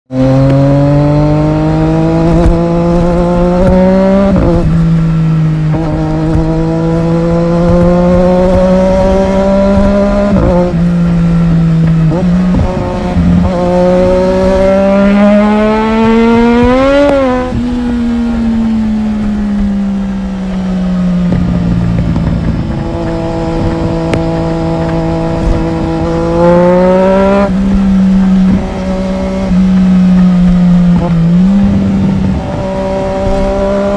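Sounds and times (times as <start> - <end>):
motorcycle engine revving: 0.1 - 33.9.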